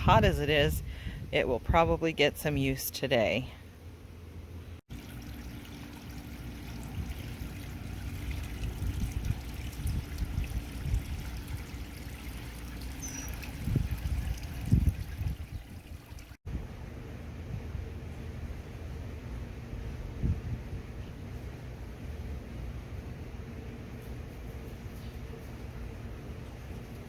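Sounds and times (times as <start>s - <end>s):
wind rumble on microphone: 0.0s - 2.2s, 6.8s - 11.9s, 13.1s - 16.8s, 19.7s - 21.5s
water trickling: 4.9s - 16.4s.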